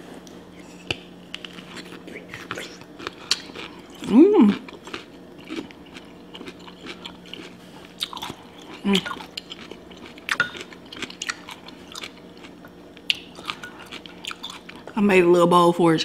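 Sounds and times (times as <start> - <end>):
faint steady hum: 0.0 - 16.0
wet chewing: 0.8 - 14.9
crunching cucumber bites: 0.9 - 14.8.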